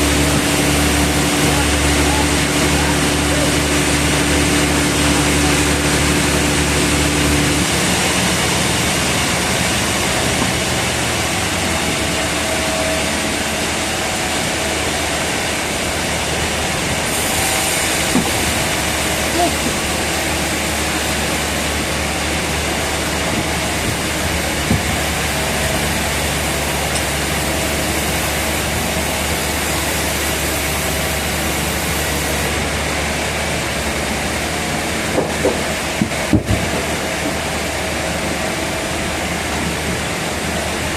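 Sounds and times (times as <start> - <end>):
low engine hum: 0.0 - 40.9
sawmill machinery running: 0.0 - 40.9
sharp knocks: 18.1 - 18.6.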